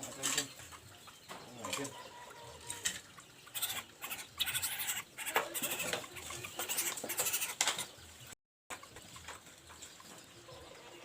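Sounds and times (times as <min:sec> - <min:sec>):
bird giving harsh raspy calls: 0:01.9 - 0:08.0.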